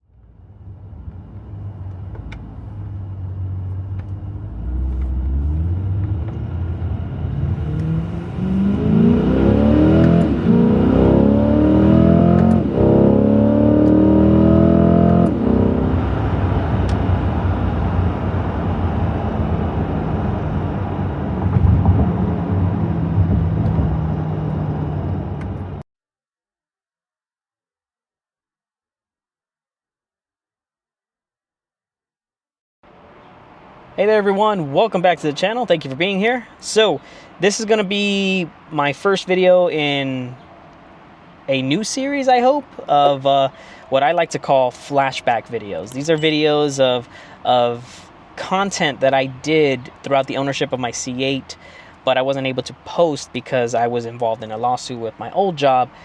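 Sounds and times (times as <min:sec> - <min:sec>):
car engine accelerating: 0:00.0 - 0:25.8.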